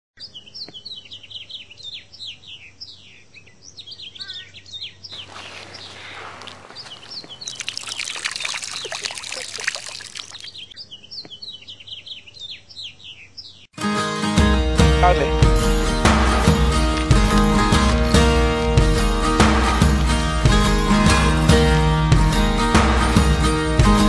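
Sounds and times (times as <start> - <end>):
small birds chirping: 0.2 - 13.8
running water trickling: 5.2 - 10.7.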